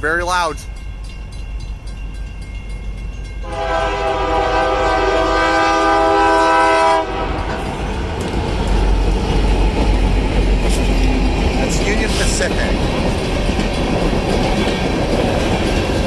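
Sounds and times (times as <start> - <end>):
train rumbling past: 0.0 - 16.0
locomotive air horn blast: 3.4 - 7.6.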